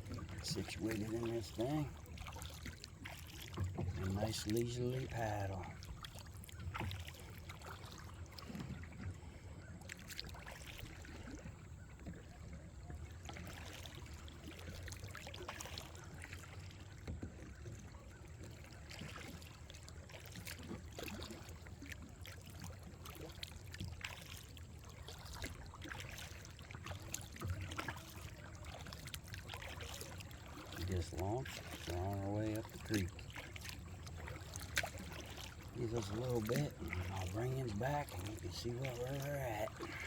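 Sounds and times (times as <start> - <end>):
paddle splashing in water: 0.0 - 40.0.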